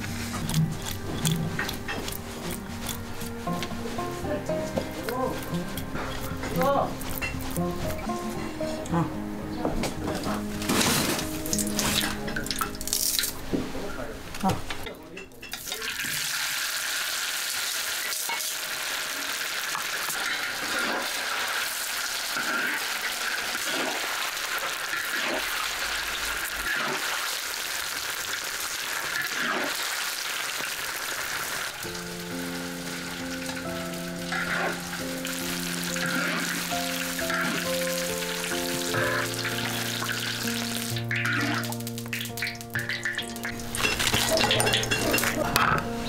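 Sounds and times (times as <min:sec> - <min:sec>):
background music: 0:00.0 - 0:21.0, 0:31.8 - 0:46.0
food sizzling in a wok: 0:15.6 - 0:45.2.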